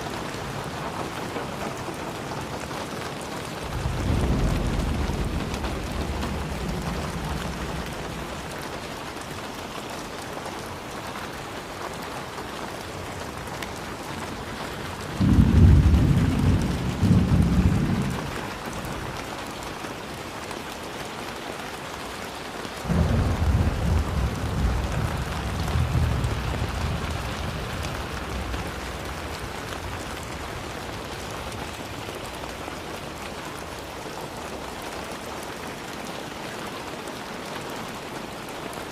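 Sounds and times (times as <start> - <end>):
steady rain: 0.0 - 38.9
thunder rumbling: 3.6 - 9.6, 14.5 - 19.2, 22.8 - 33.2
loud thunder clap: 3.7 - 9.1, 15.1 - 19.2, 22.9 - 31.0.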